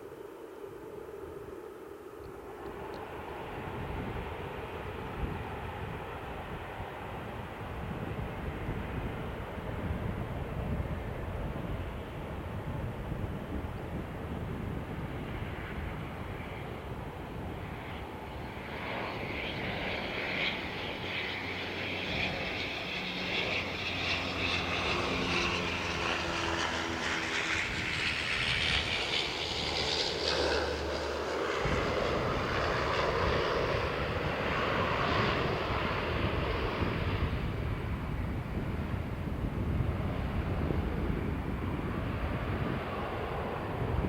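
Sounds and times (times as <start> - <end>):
jet engines whining: 14.4 - 44.0.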